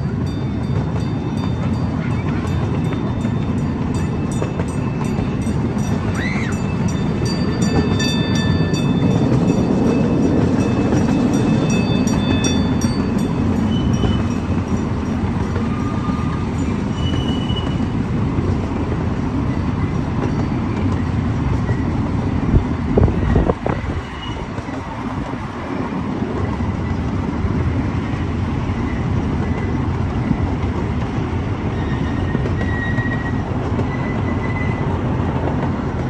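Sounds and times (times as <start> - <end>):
high wheel squeals: 0.0 - 22.4, 23.0 - 25.2, 28.5 - 35.4
ride cars rumbling on track: 0.0 - 36.0.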